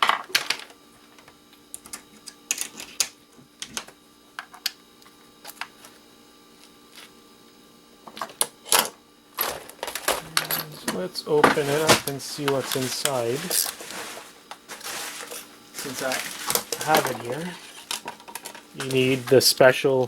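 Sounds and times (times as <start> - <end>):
electronic parts and tools clicking: 0.0 - 4.8, 15.3 - 19.6
faint steady hum: 0.0 - 20.0.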